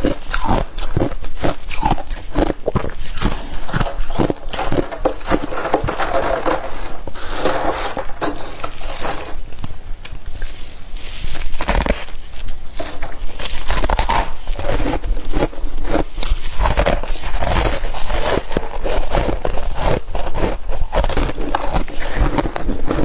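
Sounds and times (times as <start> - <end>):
frost being chewed: 0.0 - 23.0.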